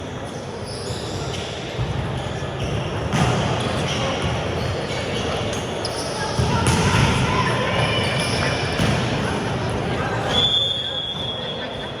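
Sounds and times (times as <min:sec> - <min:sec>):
ball bouncing on indoor court: 0:01.3 - 0:12.0
chatter of voices: 0:03.5 - 0:12.0.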